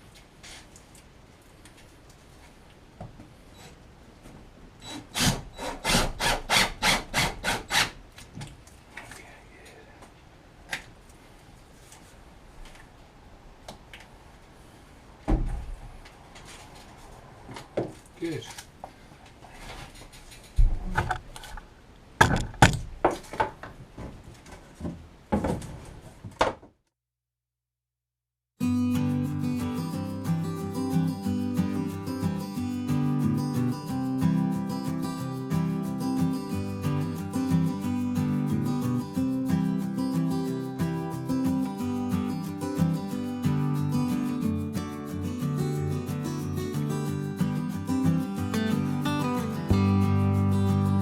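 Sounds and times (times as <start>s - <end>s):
knocks and thuds from handling: 15.3s - 15.7s, 22.2s - 26.8s
acoustic guitar music: 28.6s - 51.0s.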